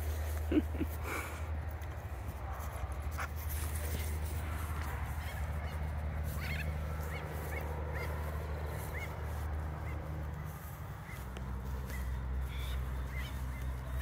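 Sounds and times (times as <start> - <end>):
bird chirping: 9.8 - 14.0.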